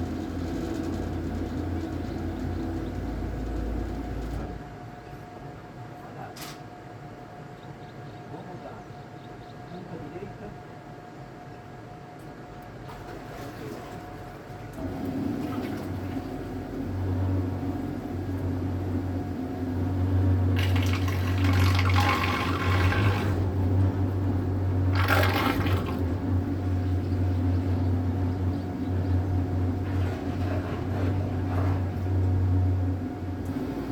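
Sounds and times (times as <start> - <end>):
electric boat motor humming: 0.0 - 4.8, 14.2 - 33.9
water rushing past hull: 20.1 - 27.0.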